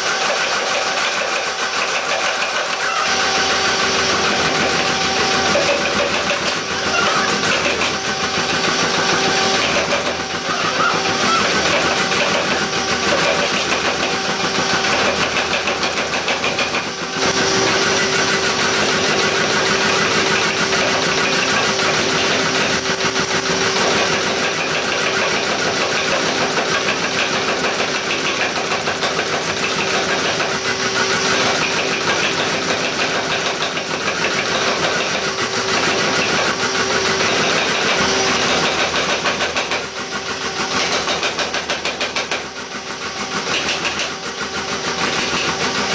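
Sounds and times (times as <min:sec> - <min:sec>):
machine running with pulsing hum: 0:00.0 - 0:45.9.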